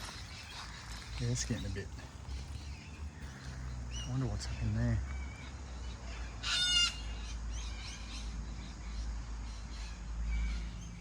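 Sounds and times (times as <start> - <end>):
loud bird call: 2.0 - 8.3.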